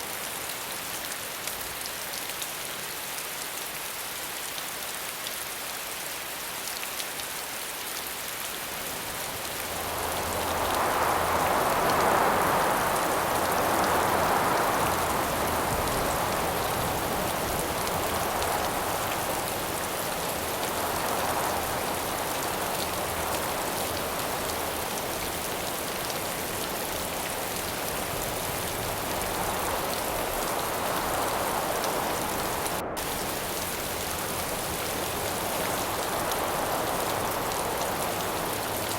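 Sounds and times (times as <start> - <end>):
rain falling: 0.0 - 38.9
wind gusts: 8.4 - 38.9.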